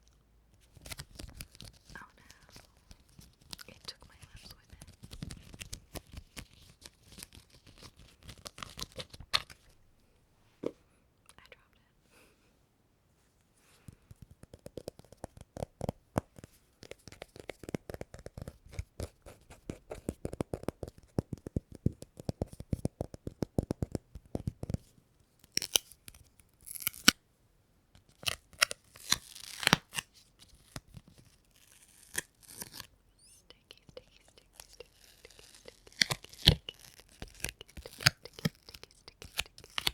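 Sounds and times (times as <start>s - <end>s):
sticky material peeling rips: 25.5s - 27.2s, 28.1s - 33.4s, 34.6s - 39.9s
sticky material crackling: 31.5s - 39.9s.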